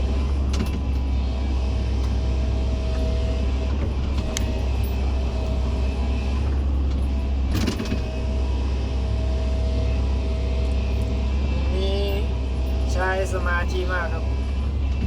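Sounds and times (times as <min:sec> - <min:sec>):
diesel engine under load: 0:00.0 - 0:15.0.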